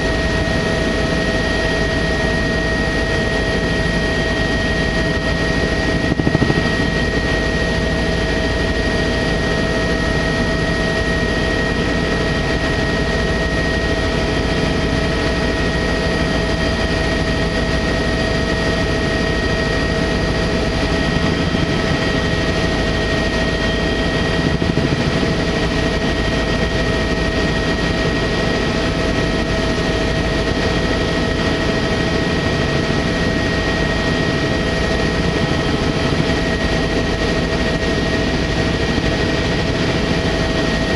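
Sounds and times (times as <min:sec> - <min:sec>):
helicopter rotor drone: 0:00.0 - 0:40.9
whining tones: 0:05.5 - 0:07.7.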